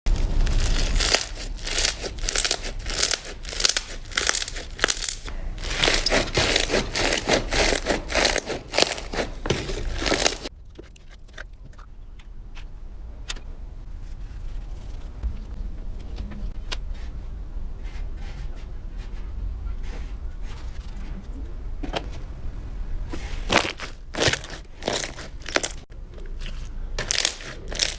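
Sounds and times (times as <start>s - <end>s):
slime crackling when squeezed: 0.1s - 10.5s, 23.5s - 25.9s, 27.0s - 27.9s.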